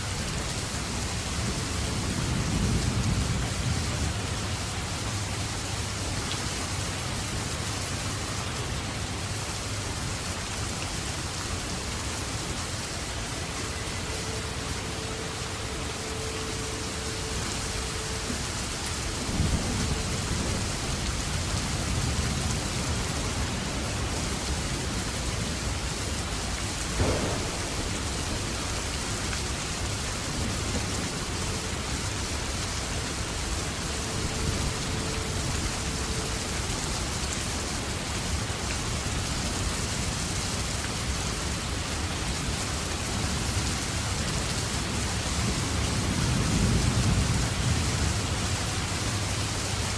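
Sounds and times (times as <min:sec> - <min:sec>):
steady rain: 0:00.0 - 0:49.9
low thunder rumbles: 0:26.7 - 0:32.8.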